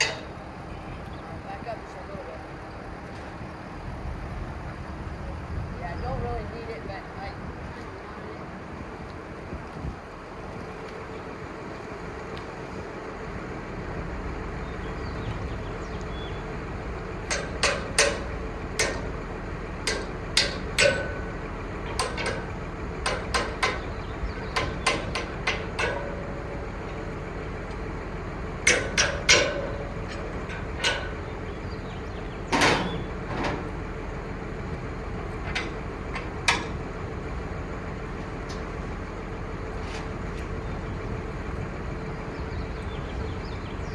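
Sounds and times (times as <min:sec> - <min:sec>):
sharp metallic knocks and clanks: 0:00.0 - 0:00.4, 0:17.2 - 0:27.0, 0:28.6 - 0:33.8, 0:35.2 - 0:36.9
diesel engine running: 0:00.0 - 0:43.9.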